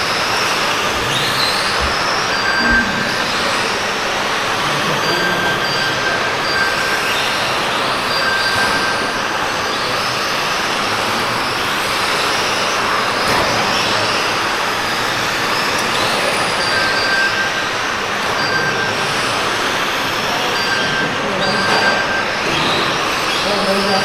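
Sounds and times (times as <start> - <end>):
model truck motors whining: 0.0 - 24.0
short beeps: 1.8 - 3.9, 4.6 - 7.2, 16.5 - 19.2, 20.3 - 23.0.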